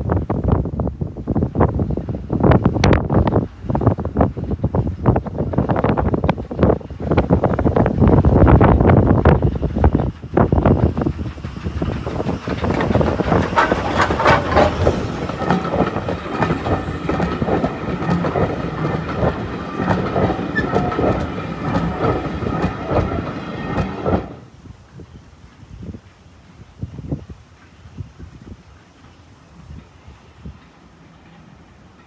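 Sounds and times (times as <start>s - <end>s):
train wheels clicking over rail joints: 1.8s - 24.7s.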